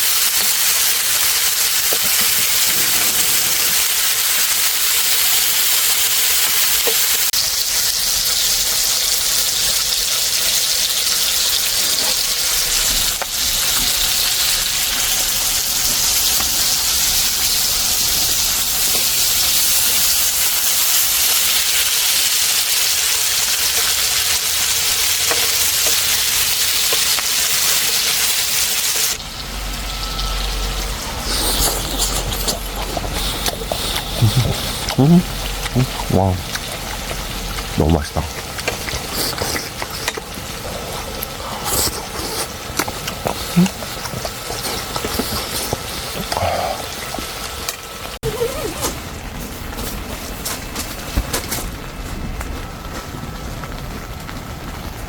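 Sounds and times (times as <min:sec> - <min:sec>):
steak sizzling: 0:00.0 - 0:48.1.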